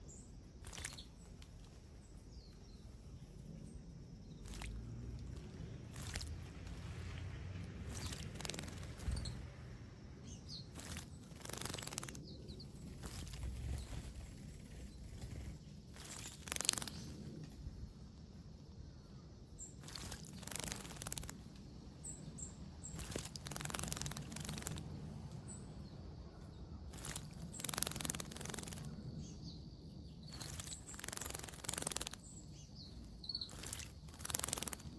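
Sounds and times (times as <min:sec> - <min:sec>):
faint bird chirps: 0:00.0 - 0:06.3, 0:07.8 - 0:34.9
birds splashing in water: 0:00.6 - 0:01.2, 0:04.4 - 0:09.6, 0:10.6 - 0:17.0, 0:19.8 - 0:21.4, 0:22.9 - 0:25.0, 0:26.9 - 0:29.0, 0:30.3 - 0:32.2, 0:33.5 - 0:34.9.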